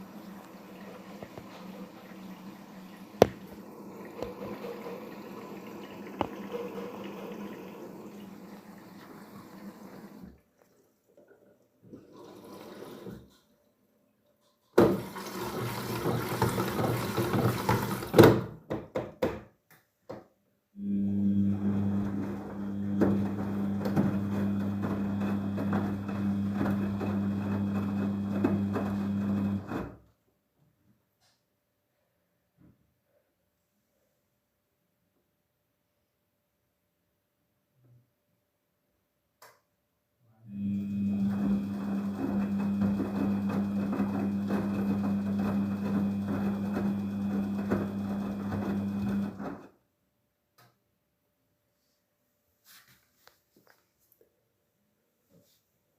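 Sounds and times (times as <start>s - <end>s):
washing machine humming: 0.0s - 10.4s, 14.8s - 18.2s, 20.8s - 30.0s, 40.5s - 49.7s
water and laundry sloshing: 0.0s - 13.3s, 14.8s - 18.2s, 21.2s - 29.9s, 40.8s - 49.6s
knocks and splashing: 14.8s - 18.5s.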